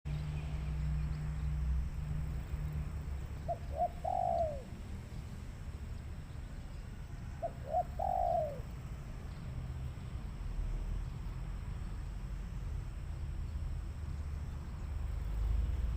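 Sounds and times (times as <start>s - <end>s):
dove cooing: 3.4s - 4.8s, 7.4s - 8.7s.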